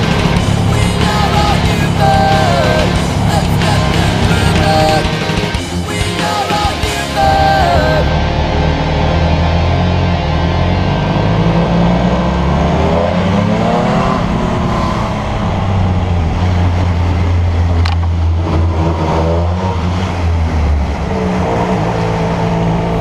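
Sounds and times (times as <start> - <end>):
motorcycle engine accelerating: 0.0 - 23.0
wind noise: 9.9 - 23.0.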